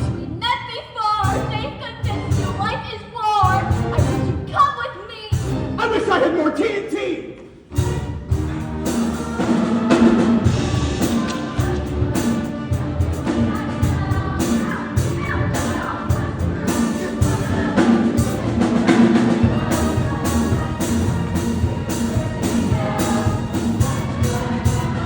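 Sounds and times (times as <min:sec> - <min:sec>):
steady drum beat: 0:01.2 - 0:04.6, 0:07.7 - 0:25.0
band playing instrumental music: 0:07.7 - 0:25.0.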